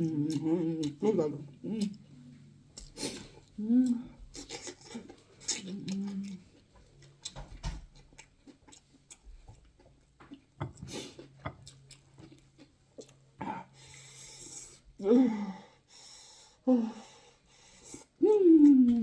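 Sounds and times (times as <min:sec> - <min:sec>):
person humming mm: 0:00.0 - 0:02.0, 0:03.6 - 0:04.2, 0:18.1 - 0:19.0
person chewing food: 0:00.0 - 0:14.8.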